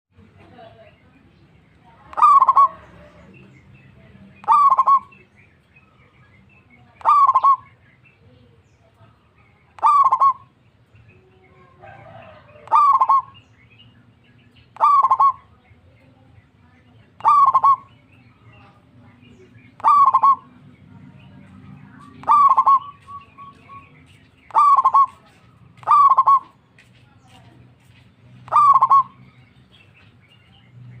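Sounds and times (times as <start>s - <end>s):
dove cooing: 2.1s - 3.3s, 4.4s - 5.1s, 7.0s - 7.6s, 9.8s - 10.5s, 11.6s - 13.4s, 14.8s - 15.5s, 17.2s - 18.6s, 19.8s - 20.6s, 22.0s - 23.7s, 24.5s - 26.6s, 28.4s - 29.2s.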